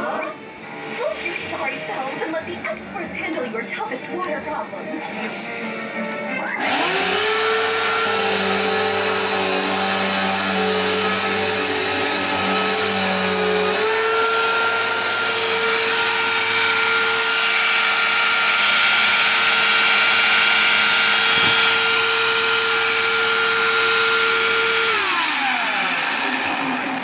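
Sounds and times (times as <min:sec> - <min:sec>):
hiss: 0:00.7 - 0:02.2
motor whining: 0:04.9 - 0:27.0.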